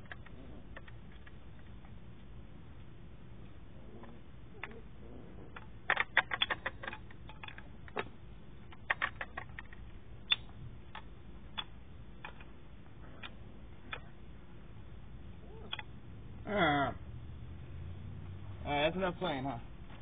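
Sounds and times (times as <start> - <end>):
sharp clicks and taps: 8.7 - 12.5.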